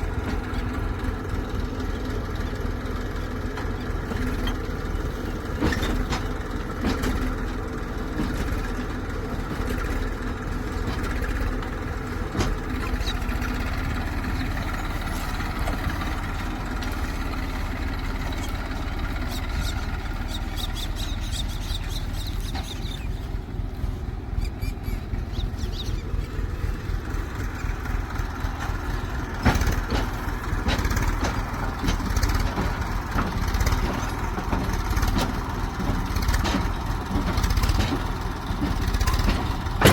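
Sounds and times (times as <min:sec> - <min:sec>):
diesel engine running: 0:00.0 - 0:39.9
metallic knocks and clanks: 0:03.3 - 0:20.2, 0:26.8 - 0:39.9.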